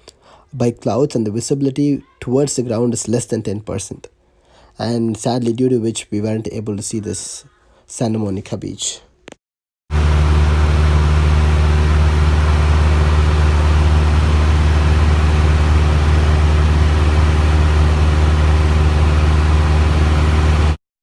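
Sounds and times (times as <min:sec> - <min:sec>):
propeller aircraft engine droning: 0:09.9 - 0:20.8.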